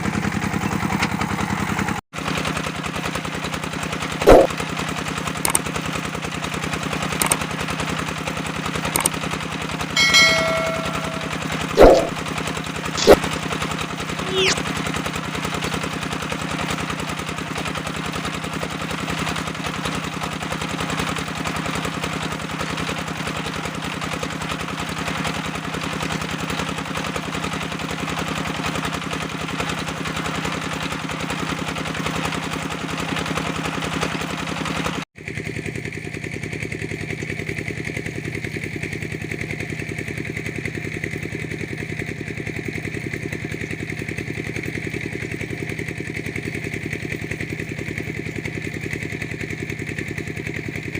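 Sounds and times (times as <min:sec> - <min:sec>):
brick press engine running: 0:05.4 - 0:05.6, 0:06.9 - 0:07.4, 0:08.8 - 0:09.1.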